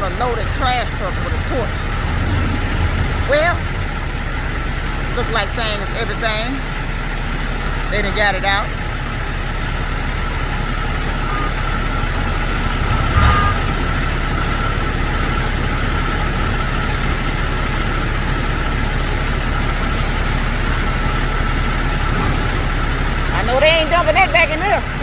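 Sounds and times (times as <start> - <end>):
truck diesel engine idling: 0.0 - 25.0.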